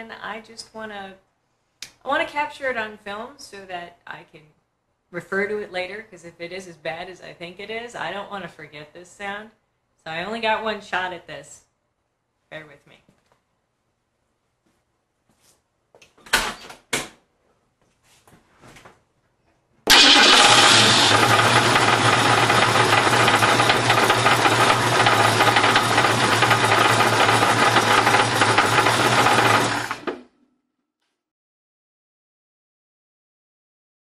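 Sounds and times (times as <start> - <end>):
car engine starting and running: 19.9 - 30.2.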